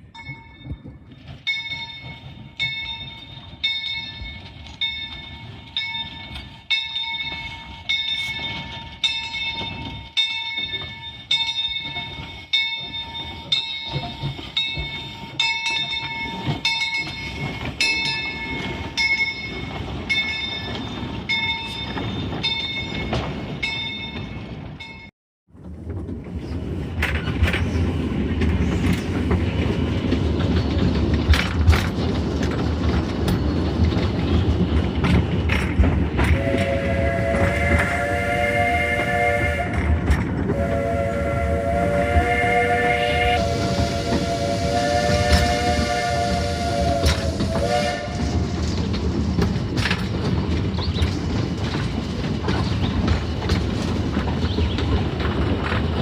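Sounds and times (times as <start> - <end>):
locomotive bell ringing: 0.0 - 25.1
train rumbling: 0.0 - 56.0.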